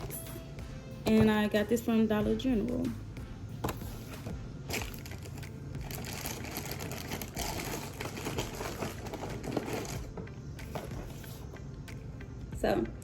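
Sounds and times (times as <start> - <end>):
snack packaging crinkling: 4.7 - 10.9.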